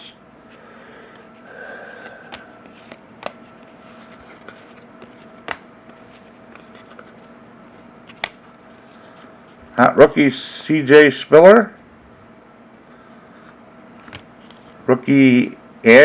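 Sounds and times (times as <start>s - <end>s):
faint steady hum: 0.0s - 16.0s
trading cards being flipped: 2.0s - 9.3s.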